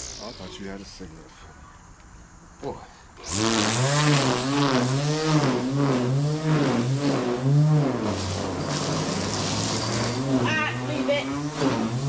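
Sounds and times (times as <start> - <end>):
motor surging: 0.0 - 0.8, 3.2 - 12.0.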